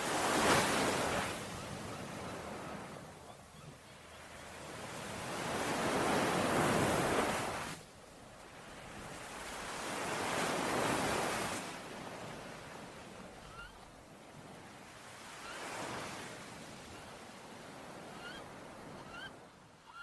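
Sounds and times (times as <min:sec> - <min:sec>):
ocean waves washing ashore: 0:00.0 - 0:19.7.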